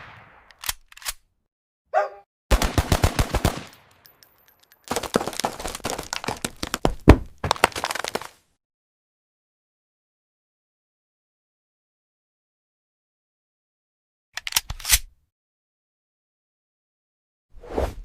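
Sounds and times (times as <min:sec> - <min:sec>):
machine-gun fire bursts: 0:02.5 - 0:03.9.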